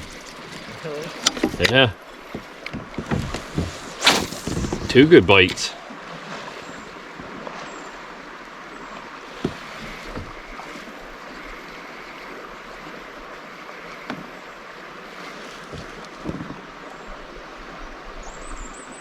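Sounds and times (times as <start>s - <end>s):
lake water: 0.0s - 19.0s
light knocks on kayak: 9.4s - 10.6s.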